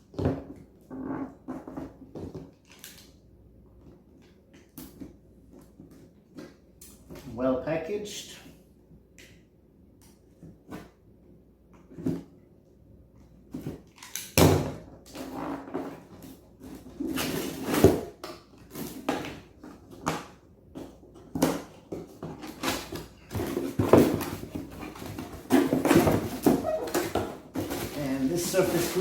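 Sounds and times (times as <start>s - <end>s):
packaging rustling and scraping: 15.1s - 20.1s, 20.7s - 29.0s.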